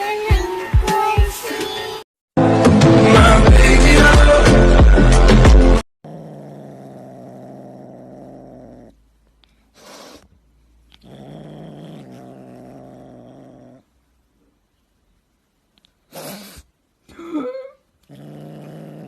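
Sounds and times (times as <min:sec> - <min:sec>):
cat growling: 0:06.0 - 0:09.0, 0:10.9 - 0:13.9, 0:18.0 - 0:19.0
cat hissing: 0:09.5 - 0:11.0, 0:16.0 - 0:16.8.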